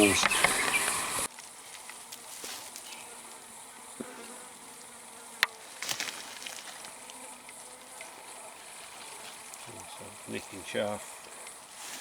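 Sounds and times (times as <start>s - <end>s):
insects buzzing: 0.0s - 12.0s
soft rustle: 1.3s - 3.4s, 5.5s - 10.1s, 11.2s - 12.0s.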